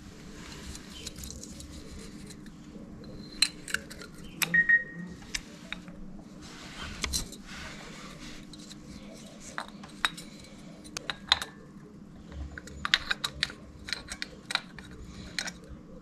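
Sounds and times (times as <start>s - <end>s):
faint steady hum: 0.0s - 16.0s
metal parts clinking: 12.6s - 15.7s.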